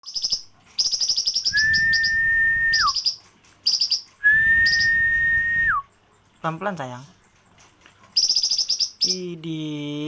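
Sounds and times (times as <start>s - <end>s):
long level whistle: 1.5s - 3.0s, 4.2s - 5.8s
songbird chattering trills: 8.2s - 9.6s.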